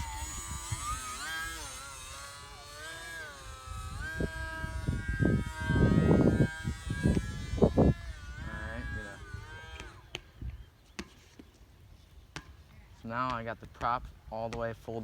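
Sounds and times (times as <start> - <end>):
wind buffeting microphone: 0.0 - 10.7
model airplane motor whining: 0.0 - 10.8.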